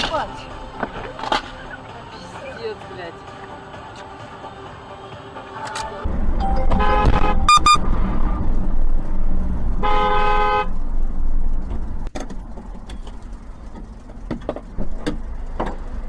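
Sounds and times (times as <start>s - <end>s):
traffic noise: 0.0s - 16.0s
car rumbling on road: 5.5s - 16.0s
car horn honk: 6.4s - 8.2s, 9.8s - 10.7s.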